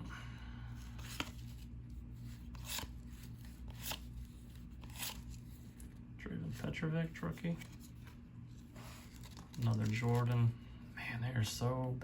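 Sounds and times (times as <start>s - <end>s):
steady low hum: 0.0s - 12.0s
cards being flipped: 1.0s - 6.0s, 7.3s - 10.5s.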